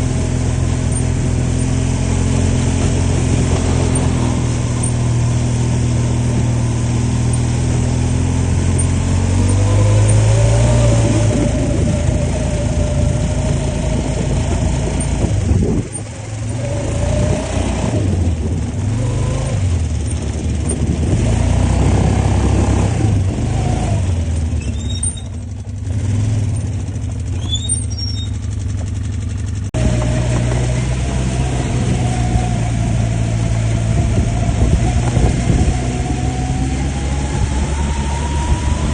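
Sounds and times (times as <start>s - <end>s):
atv engine revving: 0.0s - 38.9s.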